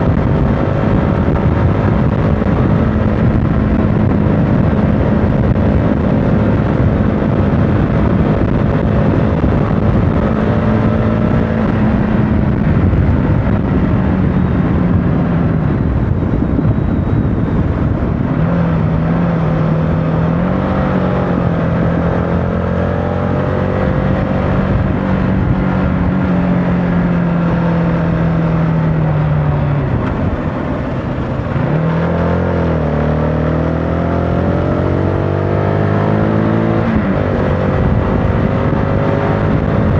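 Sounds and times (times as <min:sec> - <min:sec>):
motorcycle engine running: 0:00.0 - 0:20.5, 0:23.3 - 0:33.0
wind and road noise: 0:00.0 - 0:39.9.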